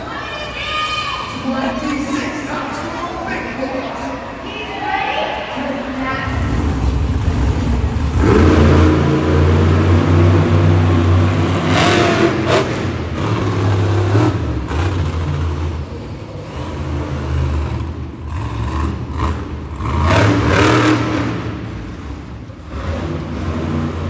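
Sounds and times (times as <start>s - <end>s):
truck engine revving: 6.0s - 24.0s.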